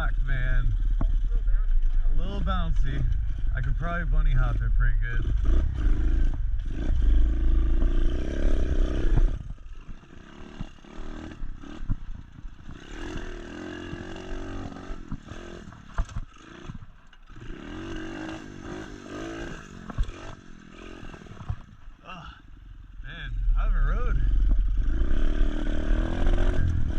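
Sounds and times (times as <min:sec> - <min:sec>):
motorbike engine revving: 0:00.0 - 0:22.3, 0:23.0 - 0:26.9
bike knocks and rattles: 0:11.4 - 0:13.0, 0:15.0 - 0:17.2, 0:21.0 - 0:21.9.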